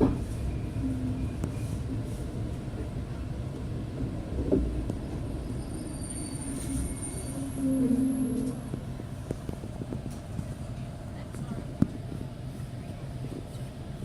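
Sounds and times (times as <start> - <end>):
train rumble: 0.0 - 14.0
faint high squeal: 5.4 - 8.6
lower squealing tone: 5.4 - 8.7.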